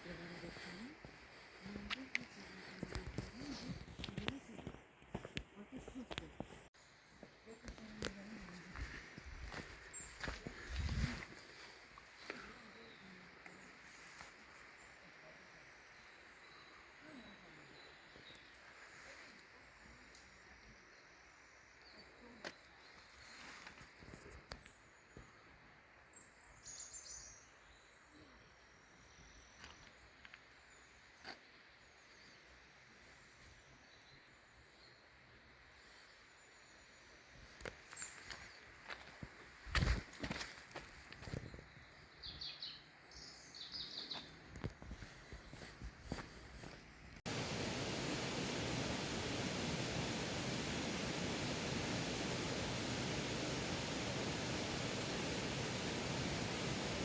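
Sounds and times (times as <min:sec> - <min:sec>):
waterfall roaring: 0:47.3 - 0:57.0.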